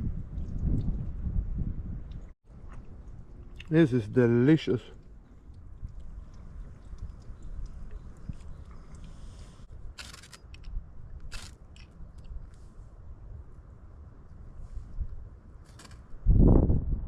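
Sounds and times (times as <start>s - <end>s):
loud crunches: 10.0s - 10.7s.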